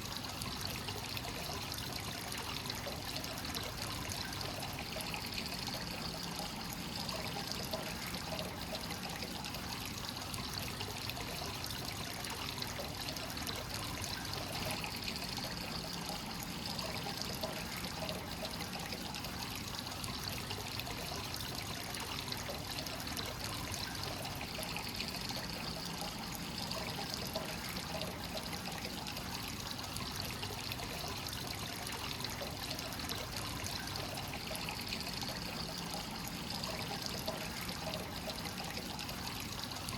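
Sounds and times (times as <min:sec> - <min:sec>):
water trickling into a bath: 0:00.0 - 0:39.9.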